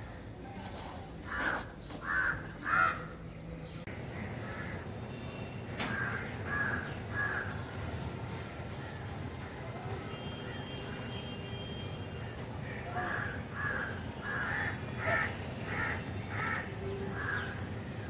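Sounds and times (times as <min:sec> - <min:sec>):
crow cawing: 0:01.3 - 0:03.2, 0:05.8 - 0:07.6, 0:12.6 - 0:17.6.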